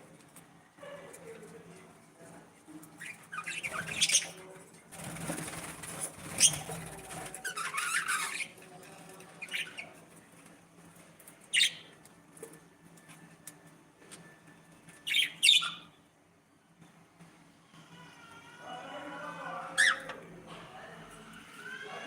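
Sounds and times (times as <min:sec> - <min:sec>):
budgerigars chirping and squawking: 0:03.0 - 0:04.4, 0:06.2 - 0:08.6, 0:09.4 - 0:09.9, 0:11.6 - 0:11.9, 0:15.1 - 0:15.9.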